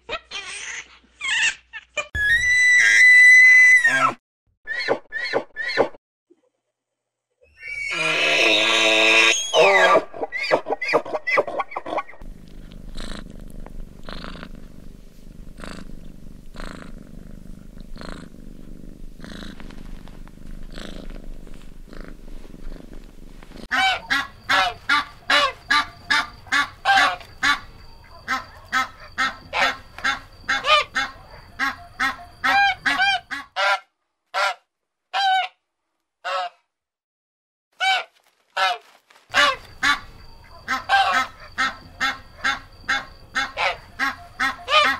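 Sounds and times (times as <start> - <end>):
geese honking: 23.7 - 27.6, 37.8 - 40.0, 40.6 - 44.9.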